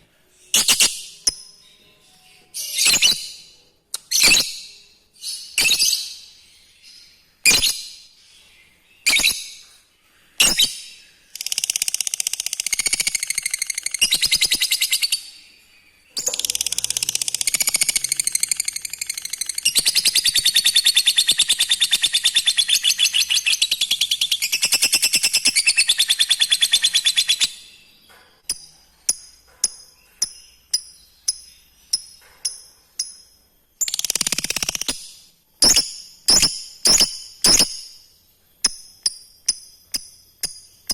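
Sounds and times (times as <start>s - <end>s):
sharp bird chirps: 0.5s - 40.9s
bird chattering trill: 16.2s - 27.5s, 28.6s - 37.9s.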